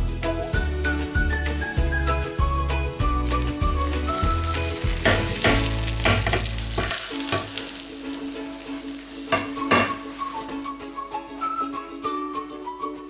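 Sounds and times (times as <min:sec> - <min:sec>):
omelet sizzling in a frying pan: 0:00.2 - 0:02.3, 0:02.9 - 0:12.4
utensil clicking against pan: 0:05.0 - 0:07.8, 0:09.3 - 0:10.1.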